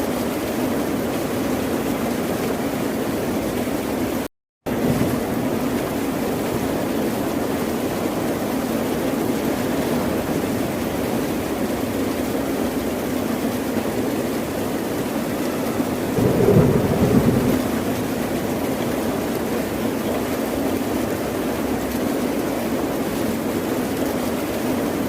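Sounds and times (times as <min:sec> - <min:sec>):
ocean surf washing: 0:15.4 - 0:20.0.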